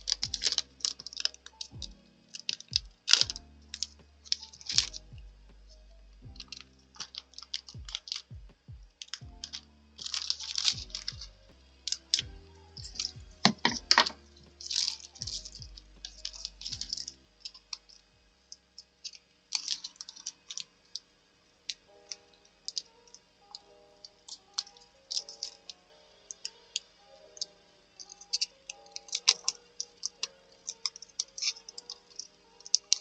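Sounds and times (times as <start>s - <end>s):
soft background music: 0.0s - 33.0s
paper rustling: 9.0s - 12.3s.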